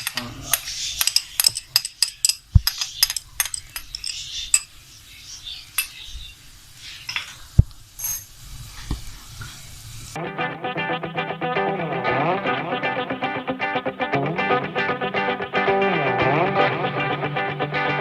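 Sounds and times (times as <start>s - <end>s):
metal spoon clinking and scraping: 0.0s - 4.8s, 5.8s - 6.0s, 8.0s - 8.3s
garlic sizzling in oil: 6.4s - 10.2s.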